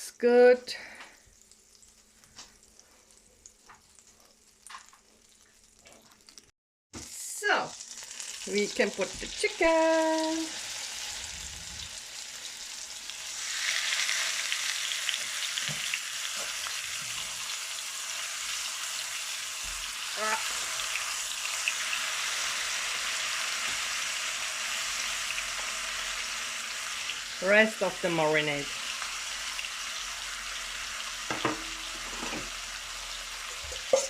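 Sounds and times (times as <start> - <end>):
chicken sizzling in a pan: 7.2 - 34.0.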